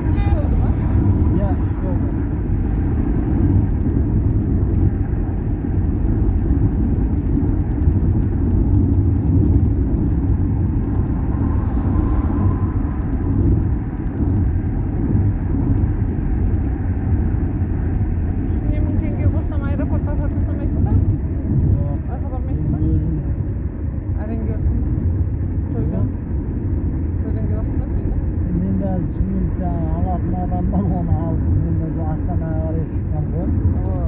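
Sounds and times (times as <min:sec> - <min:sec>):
car driving on road: 0:00.0 - 0:34.0.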